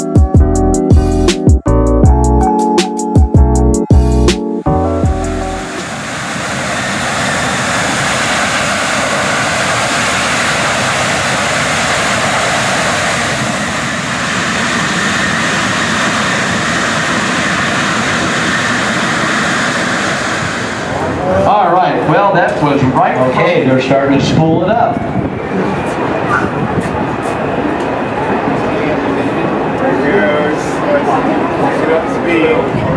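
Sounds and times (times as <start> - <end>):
music: 0.0 - 5.8
jet engines roaring: 4.6 - 32.9.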